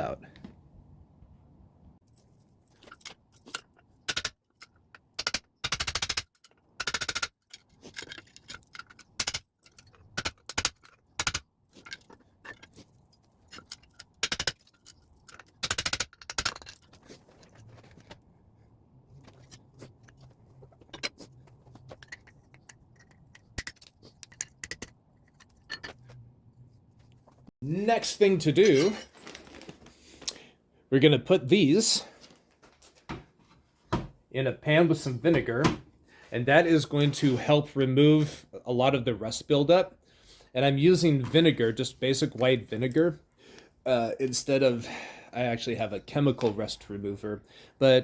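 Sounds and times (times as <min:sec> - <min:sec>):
metal clinks and scrapes: 0:06.3 - 0:18.2, 0:28.0 - 0:30.2.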